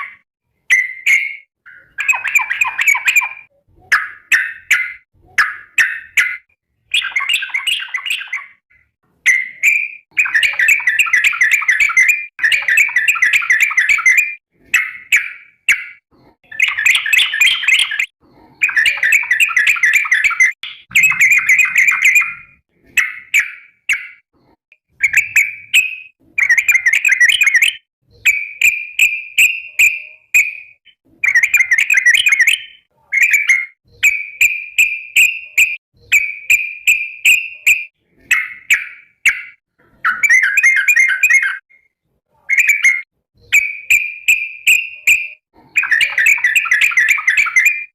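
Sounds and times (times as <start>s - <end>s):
bird giving rapid chattering calls: 16.6s - 24.2s.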